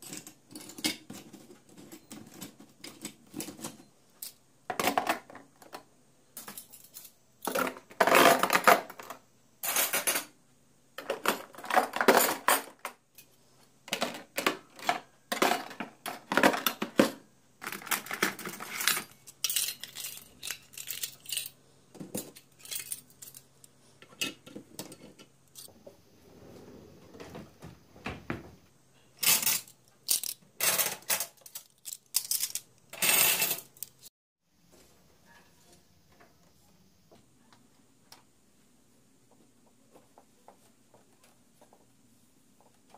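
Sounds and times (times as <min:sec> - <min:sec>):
dishes and cutlery clinking: 0:00.0 - 0:05.3.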